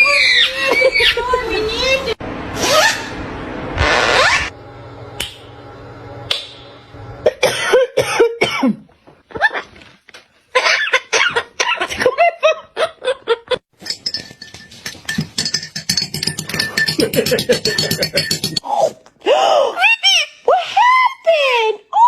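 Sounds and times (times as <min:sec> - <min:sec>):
parrot squawking: 0:00.1 - 0:01.2, 0:02.6 - 0:03.2.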